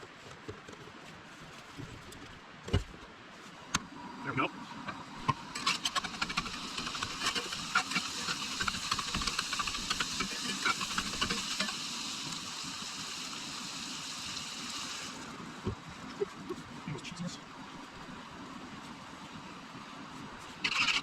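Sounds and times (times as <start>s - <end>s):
food sizzling in a frying pan: 6.3s - 15.3s.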